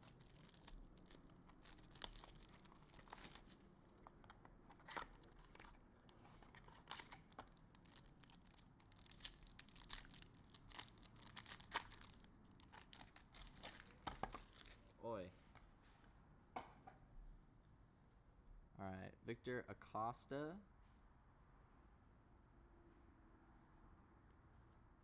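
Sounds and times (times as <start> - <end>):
sharp crackles: 0.0 - 3.7, 6.9 - 14.8
packaging crinkling and tearing: 0.0 - 14.9.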